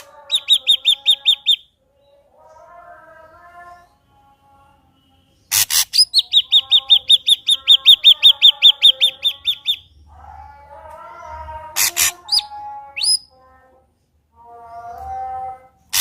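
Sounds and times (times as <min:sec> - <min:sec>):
bird warbling: 0:00.0 - 0:01.7, 0:05.5 - 0:09.9, 0:11.7 - 0:13.3
bird harsh calls: 0:05.4 - 0:10.0, 0:11.7 - 0:13.3.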